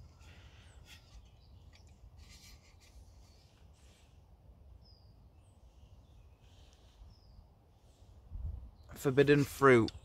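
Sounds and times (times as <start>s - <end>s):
faint high bird chirps: 4.8s - 8.0s.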